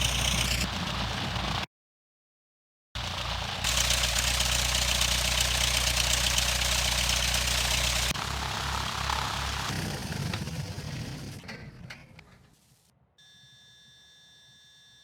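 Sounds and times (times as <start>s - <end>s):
propeller plane engine running: 0.0s - 1.7s, 3.0s - 12.2s.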